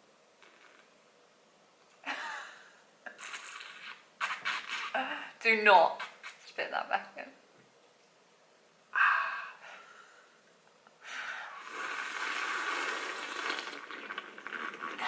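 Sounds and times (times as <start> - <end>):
person slurping coffee: 0.4 - 0.9, 3.1 - 4.9, 11.6 - 15.0.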